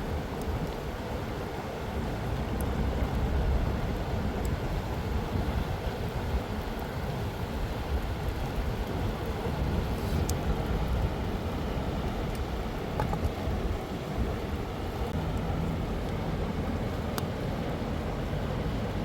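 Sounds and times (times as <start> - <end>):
river water rushing: 0.0 - 19.0
wind buffeting microphone: 0.0 - 19.0
faint sharp clicks: 17.1 - 17.3.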